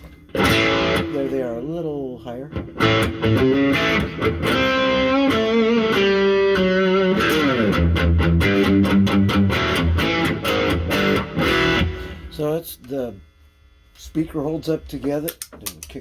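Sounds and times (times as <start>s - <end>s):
distorted electric guitar: 0.0s - 12.7s.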